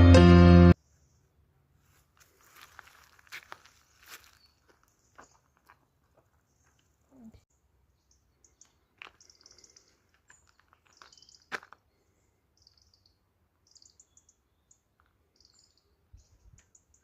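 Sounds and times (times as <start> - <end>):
small birds chirping: 3.6 - 17.0.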